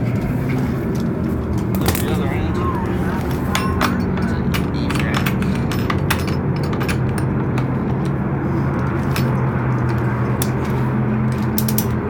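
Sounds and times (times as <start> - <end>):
strap hook clicks: 11.5 - 12.0.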